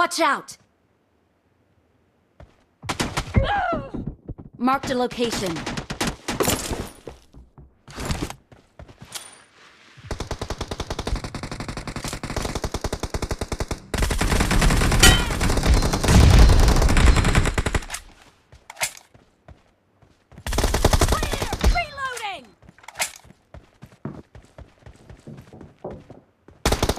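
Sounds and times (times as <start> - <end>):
video game automatic gunfire: 10.1 - 17.9, 26.6 - 26.9.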